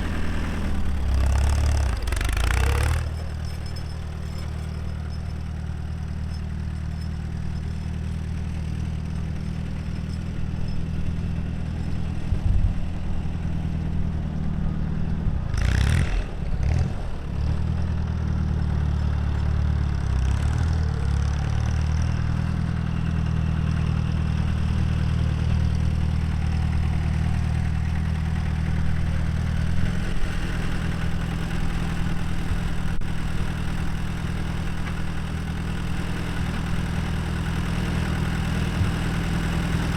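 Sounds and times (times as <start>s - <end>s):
tractor engine idling: 0.0s - 14.1s, 20.9s - 39.9s.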